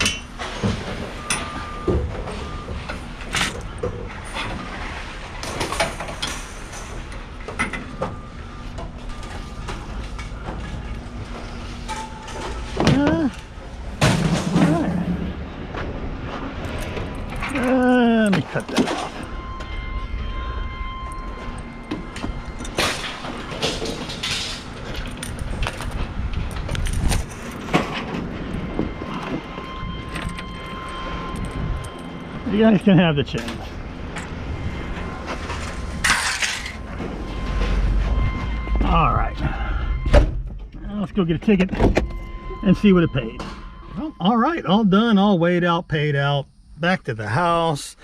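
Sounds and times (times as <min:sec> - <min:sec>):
engine humming: 0:00.0 - 0:48.0
metal scrap clanking: 0:09.1 - 0:13.0, 0:13.9 - 0:15.1, 0:21.4 - 0:26.0, 0:33.3 - 0:37.9.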